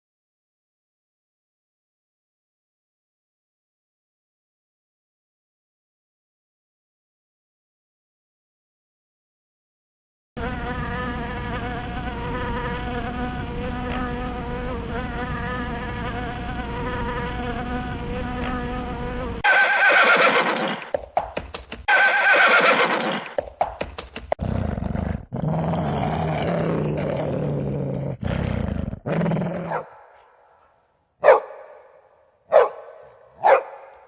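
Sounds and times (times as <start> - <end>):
flying insect buzzing: 10.4 - 19.5
horse whinnying: 19.4 - 20.9, 21.9 - 23.4.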